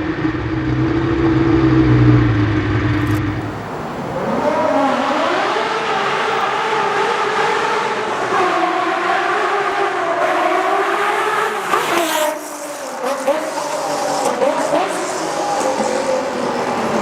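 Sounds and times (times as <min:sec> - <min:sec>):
exhaust cracks: 0:00.0 - 0:07.0
engine revving at high revs: 0:00.0 - 0:17.0.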